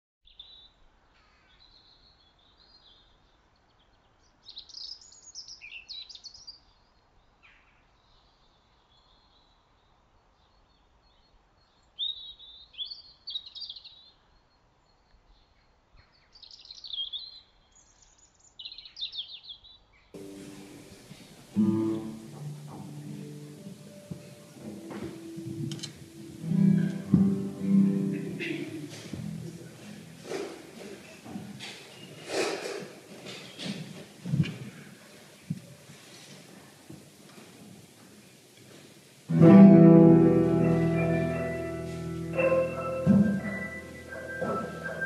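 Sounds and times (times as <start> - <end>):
faint background noise: 0.2 - 45.0
songbirds singing: 1.5 - 21.1.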